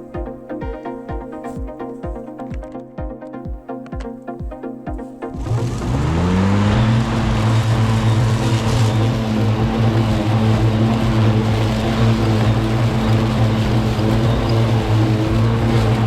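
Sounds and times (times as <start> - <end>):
electric lawn mower whirring: 5.4 - 16.0.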